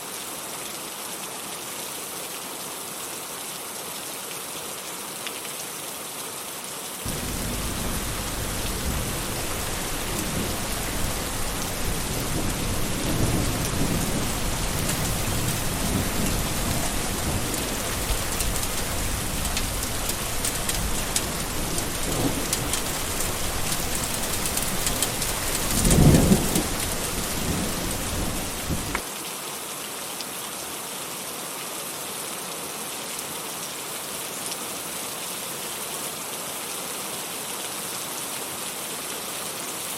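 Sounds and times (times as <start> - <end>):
steady rain falling: 0.0 - 39.9
thunder rumbling: 7.1 - 29.0.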